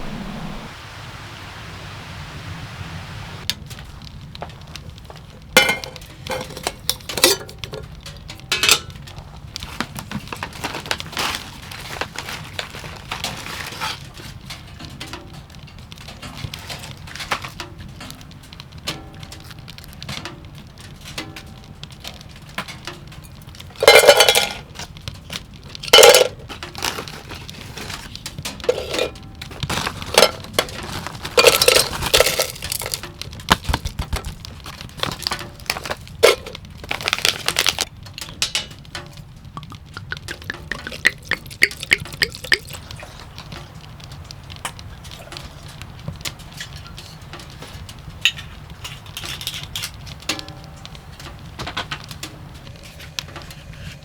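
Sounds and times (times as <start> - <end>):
cookware clinking and clattering: 5.6 - 9.0, 23.8 - 24.7, 25.9 - 27.4, 28.6 - 38.8, 39.6 - 42.8, 48.2 - 50.7.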